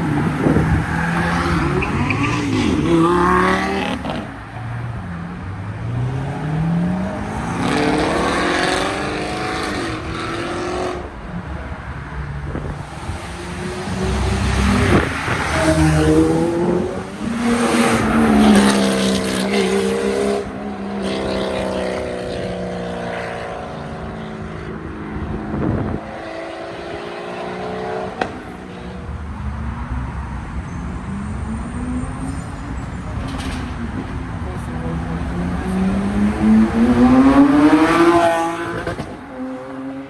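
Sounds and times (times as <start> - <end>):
car engine revving: 0.0 - 4.4, 12.6 - 24.7, 34.7 - 40.0.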